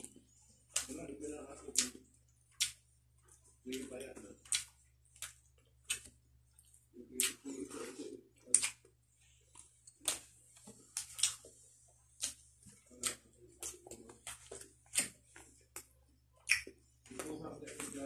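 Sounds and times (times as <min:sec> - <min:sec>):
lip smacks while chewing: 0:08.4 - 0:17.3.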